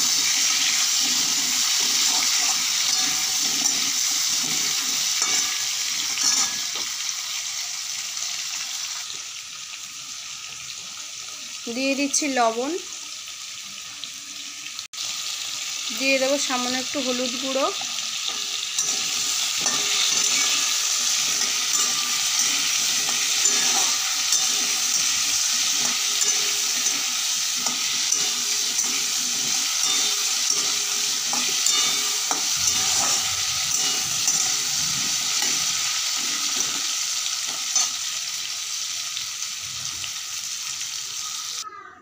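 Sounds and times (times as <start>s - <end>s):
spatula scraping a pan: 0.0s - 6.8s, 17.8s - 38.0s
potatoes sizzling in hot oil: 0.0s - 41.6s.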